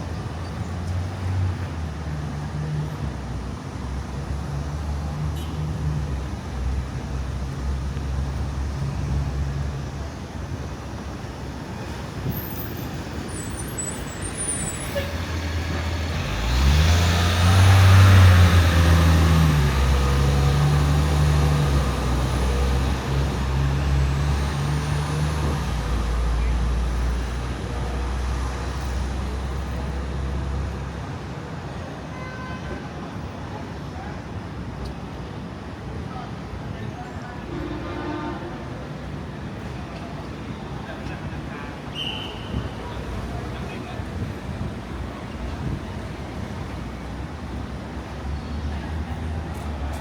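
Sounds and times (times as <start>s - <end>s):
vehicle engines humming: 0.0s - 31.2s
louder vehicle passing: 15.0s - 26.2s.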